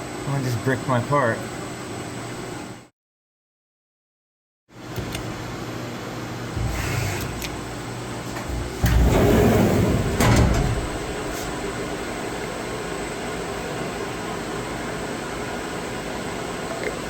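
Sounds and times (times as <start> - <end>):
machine humming: 4.8 - 15.0
machine clatter: 8.5 - 11.8.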